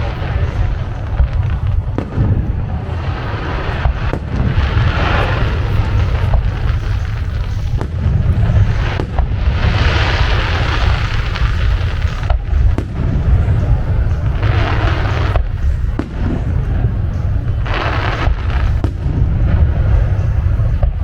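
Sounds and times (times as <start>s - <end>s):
hissing crackle: 0.0s - 21.0s
low rumble of firework booms: 0.0s - 21.0s
sharp firework bangs: 0.0s - 21.0s.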